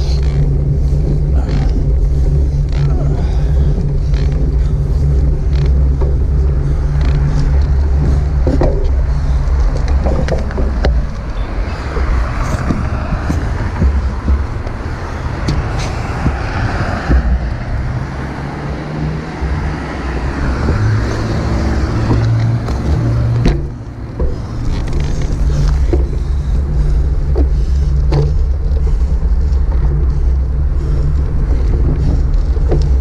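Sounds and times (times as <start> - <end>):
road and traffic noise: 0.0 - 33.0
wind rushing over microphone: 0.0 - 33.0
sharp knocks from bumps: 5.4 - 18.0, 19.5 - 26.2.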